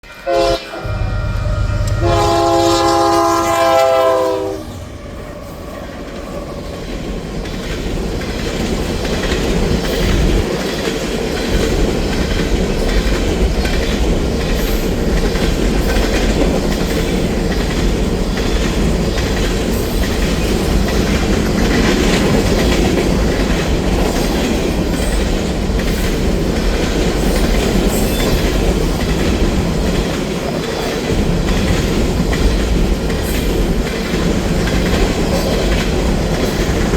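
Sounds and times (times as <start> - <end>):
locomotive air horn chord: 0.0 - 5.0
train rumbling past: 0.0 - 36.9
wheels clacking over rail joints: 4.8 - 36.9.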